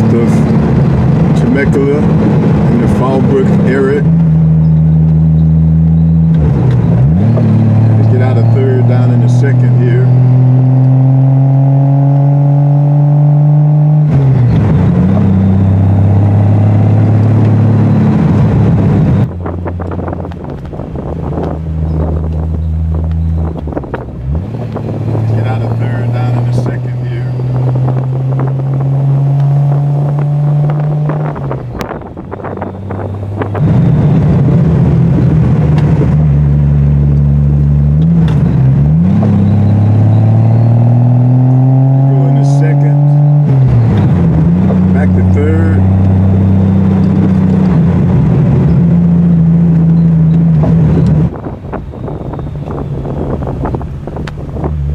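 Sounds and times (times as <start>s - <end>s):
car engine while driving: 0.0s - 54.9s.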